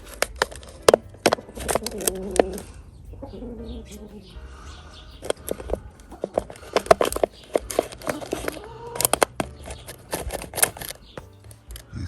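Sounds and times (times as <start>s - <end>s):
tools and parts clicking: 5.2s - 11.9s.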